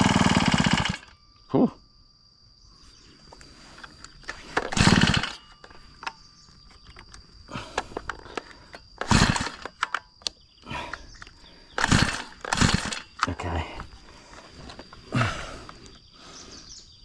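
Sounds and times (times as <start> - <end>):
brush cutter recoil starter pulls: 0.0 - 1.2, 3.8 - 15.0
handling clicks and knocks: 3.3 - 15.0.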